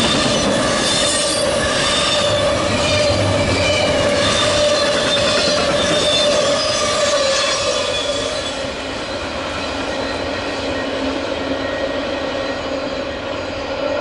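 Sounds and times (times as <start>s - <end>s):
wheels squealing: 0.0s - 13.2s
freight train cars rolling on rails: 0.0s - 14.0s.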